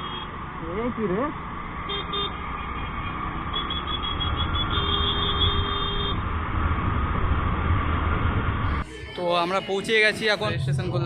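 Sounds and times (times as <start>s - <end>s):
road and wind rumble: 0.0s - 11.0s
vehicle horn beeping: 3.5s - 6.2s.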